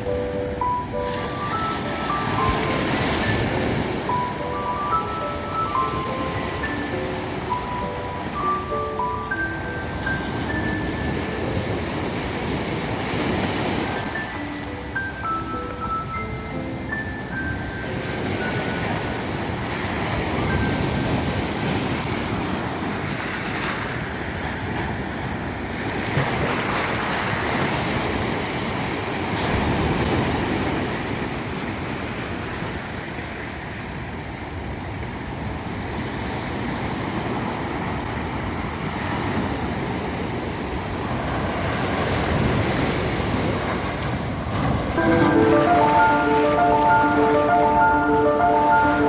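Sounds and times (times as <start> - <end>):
musical notes: 0.0 - 21.4, 44.9 - 49.0
sea waves breaking on a beach: 0.0 - 49.0
wind: 0.0 - 49.0.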